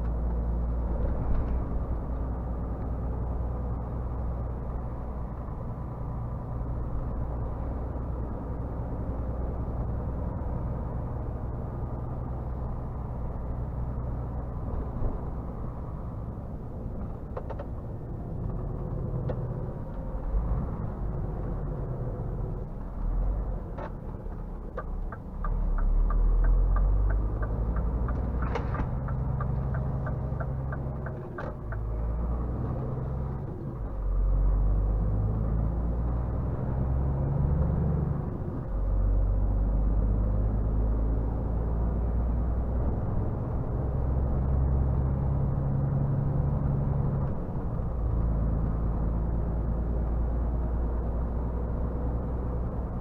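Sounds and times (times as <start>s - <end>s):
diesel truck engine running: 17.9s - 35.2s
turn signal ticking: 24.6s - 32.1s.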